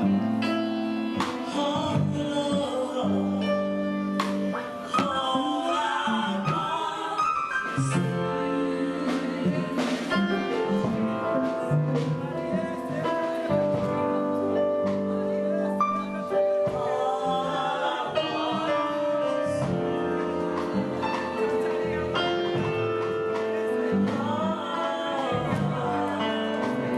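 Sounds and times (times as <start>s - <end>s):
gospel singing: 0.0s - 26.9s
sustained instrumental chords: 7.9s - 26.9s.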